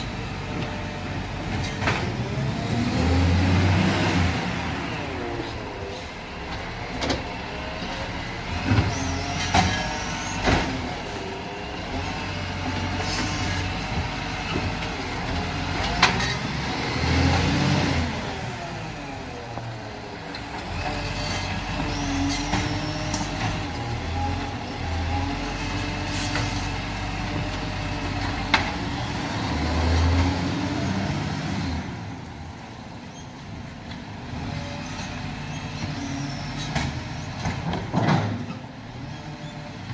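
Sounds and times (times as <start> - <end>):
truck engine revving: 0.0 - 19.6, 20.4 - 32.1.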